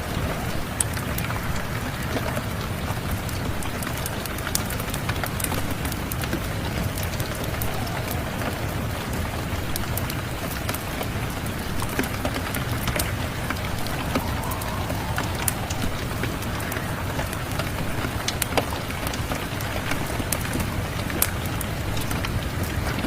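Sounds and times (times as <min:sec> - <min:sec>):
steady rain: 0:00.0 - 0:23.0
wood fire crackling: 0:00.0 - 0:23.0.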